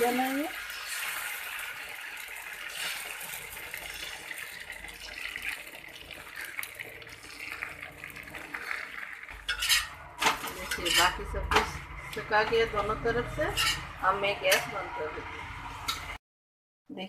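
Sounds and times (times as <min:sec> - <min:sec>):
batter sizzling on hot griddle: 0:00.0 - 0:11.2.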